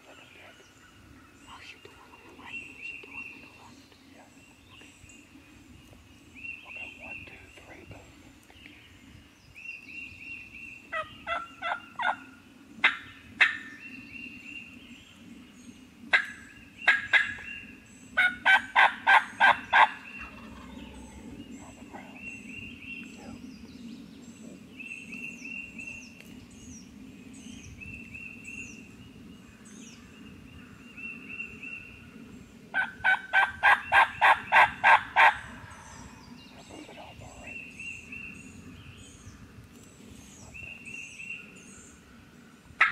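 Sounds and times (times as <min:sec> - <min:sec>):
songbirds singing high notes: 0:00.0 - 0:12.4, 0:16.5 - 0:32.0
turkeys gobbling: 0:10.9 - 0:12.2, 0:18.2 - 0:21.3, 0:32.8 - 0:35.4.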